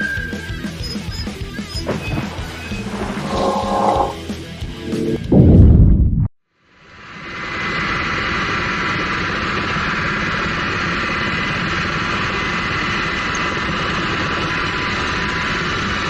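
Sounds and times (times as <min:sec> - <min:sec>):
aircraft engine rumble: 0:00.0 - 0:05.4
high engine whine: 0:00.0 - 0:05.4.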